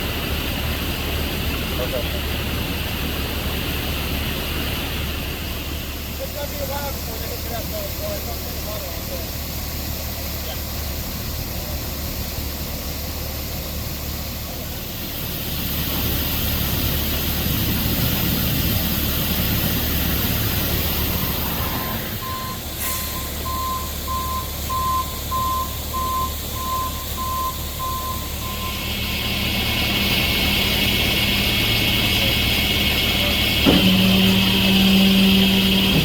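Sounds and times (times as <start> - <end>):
diesel engine idling: 0.0 - 36.0
reversing alarm beeping: 22.2 - 30.6.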